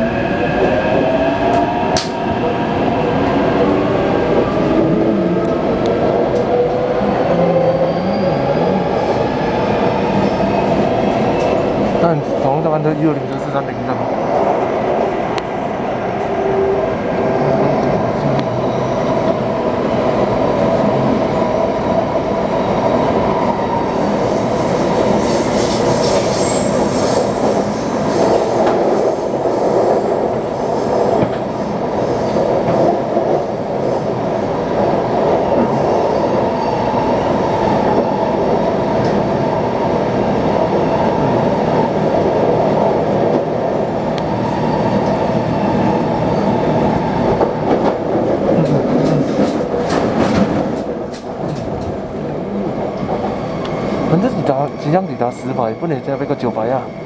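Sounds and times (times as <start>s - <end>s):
train wheels on rails: 17.5s - 40.9s, 41.7s - 54.9s.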